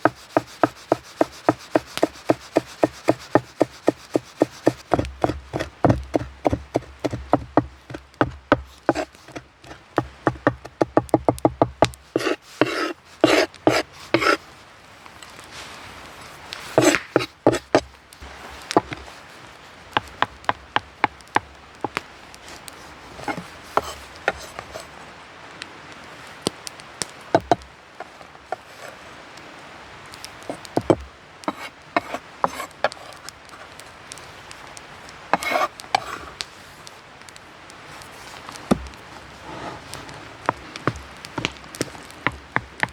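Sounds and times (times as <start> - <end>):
tool striking wood: 0.0 - 14.4, 16.8 - 17.9, 20.0 - 22.0, 27.4 - 27.6, 30.8 - 32.2, 38.7 - 39.7, 40.4 - 42.9.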